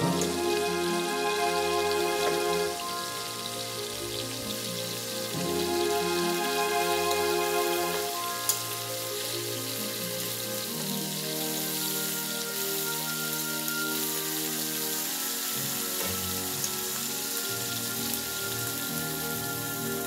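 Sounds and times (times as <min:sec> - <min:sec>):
soft music of slow chords: 0:00.0 - 0:20.0
vegetables sizzling in oil: 0:00.0 - 0:20.0.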